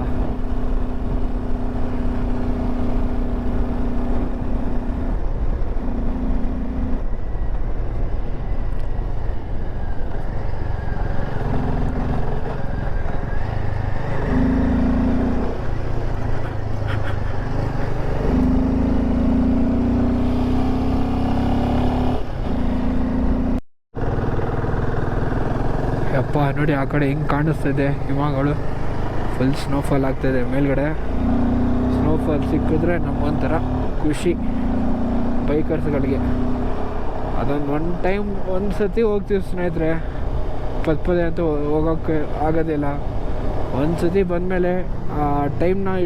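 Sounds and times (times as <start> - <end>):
motorcycle engine running: 10.1 - 21.9, 22.6 - 37.4.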